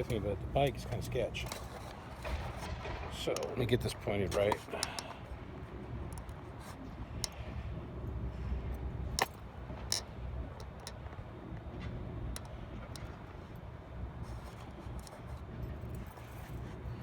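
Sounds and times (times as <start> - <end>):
sharp clicks and ticks: 2.2 - 5.2.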